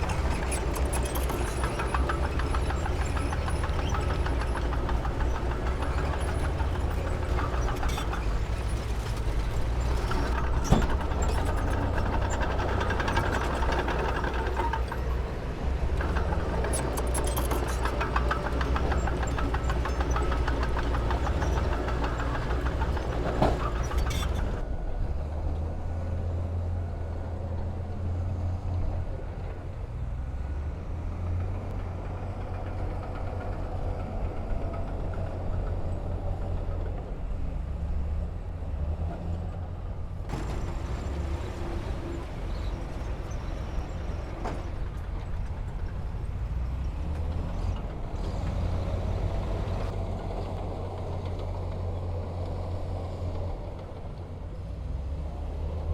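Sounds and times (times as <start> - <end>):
mechanical clatter: 0.0 - 24.6
heavy machinery engine rumble: 0.0 - 55.9.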